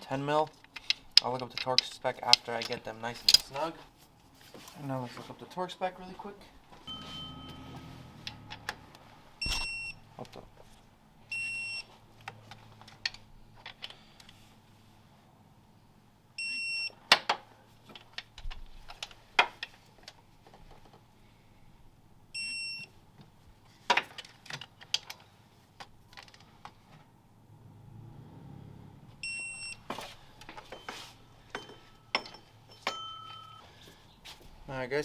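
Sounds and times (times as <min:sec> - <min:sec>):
hand tools clicking on metal: 0:03.2 - 0:03.5.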